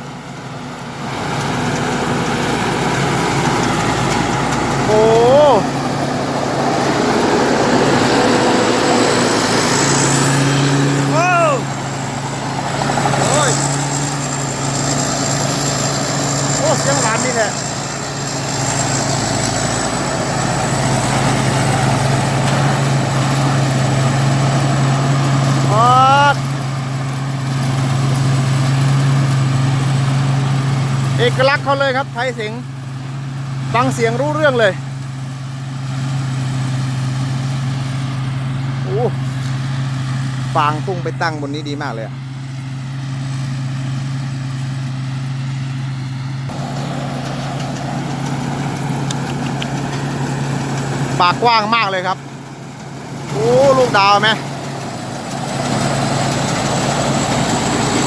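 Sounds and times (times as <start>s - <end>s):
combine harvester engine droning: 0.0s - 58.0s
machine rushing noise: 1.2s - 25.6s.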